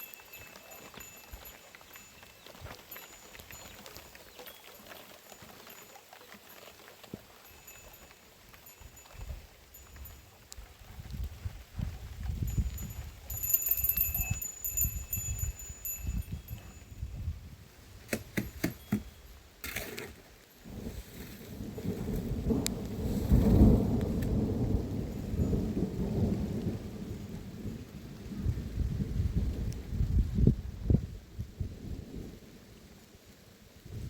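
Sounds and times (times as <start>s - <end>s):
rain hissing: 20.3s - 34.0s
thunder rolling: 21.5s - 30.8s.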